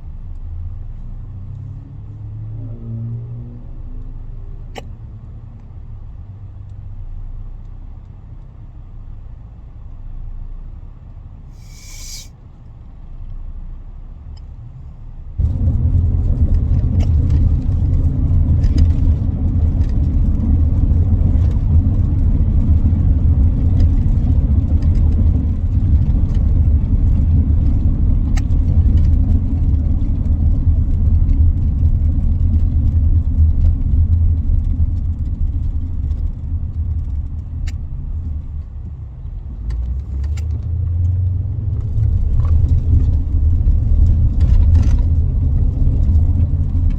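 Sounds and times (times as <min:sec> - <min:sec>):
car rumble from inside cabin: 0:00.0 - 0:46.9.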